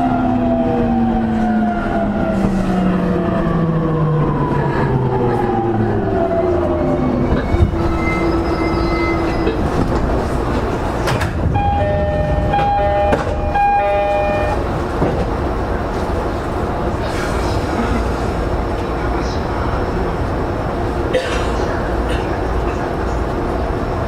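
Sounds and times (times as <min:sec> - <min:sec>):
train wheel and rail rumble: 0:00.0 - 0:24.0
two-pitch horn signal: 0:11.5 - 0:14.6.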